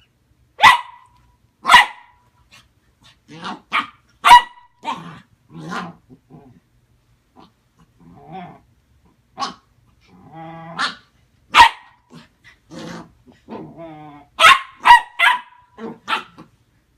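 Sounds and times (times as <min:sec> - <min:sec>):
puppy barking and yapping: 0:00.6 - 0:05.2, 0:10.8 - 0:12.3, 0:14.4 - 0:16.5.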